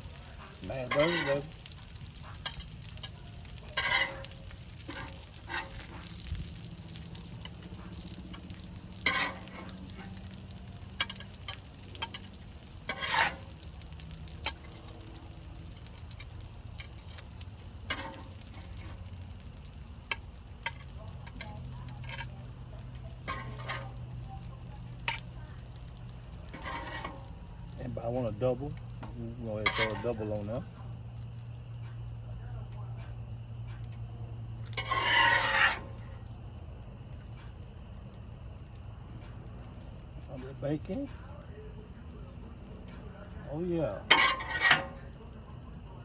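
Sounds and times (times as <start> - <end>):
burger patties sizzling: 0.0 - 46.0
spatula clanks and scrapes: 0.1 - 6.3, 7.2 - 10.2, 10.9 - 13.6, 17.8 - 19.1, 20.1 - 25.3, 26.4 - 27.4, 29.0 - 30.4, 34.6 - 36.1, 44.0 - 45.2.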